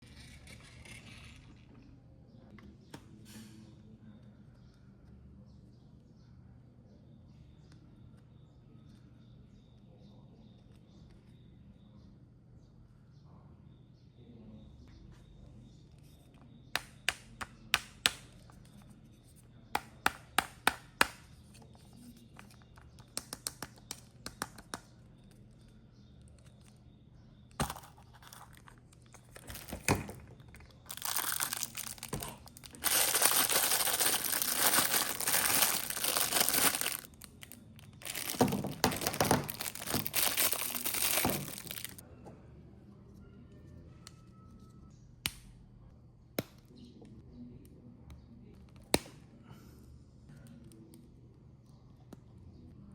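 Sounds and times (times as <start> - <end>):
plastic packaging clicks and snaps: 22.4 - 24.9, 27.6 - 42.0
plastic wrapping crinkling and tearing: 27.6 - 42.0.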